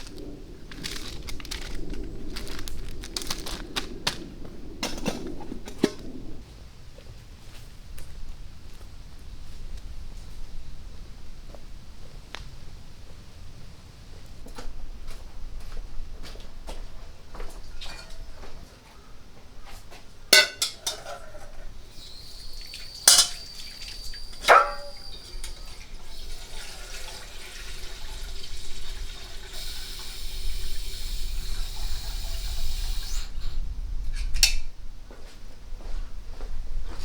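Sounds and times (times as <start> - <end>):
metal cookware clanking: 20.4 - 21.6, 23.0 - 25.7
liquid pouring: 22.1 - 31.0.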